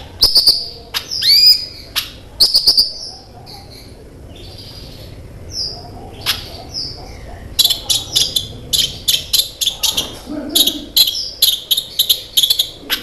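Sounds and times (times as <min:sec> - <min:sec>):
sunbird whistles and chirps: 0:00.2 - 0:01.8, 0:02.4 - 0:03.2.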